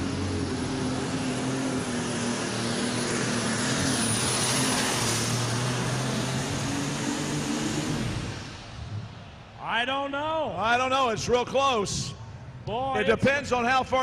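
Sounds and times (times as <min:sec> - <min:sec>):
tractor engine at full power: 0:00.0 - 0:09.6.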